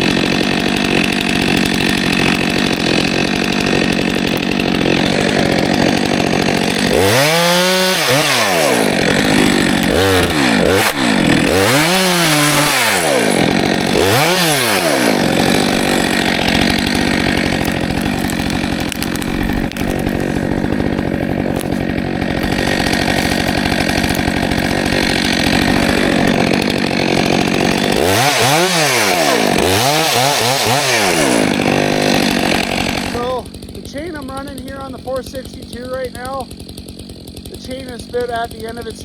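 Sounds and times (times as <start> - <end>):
chainsaw cutting log: 0.0 - 39.0.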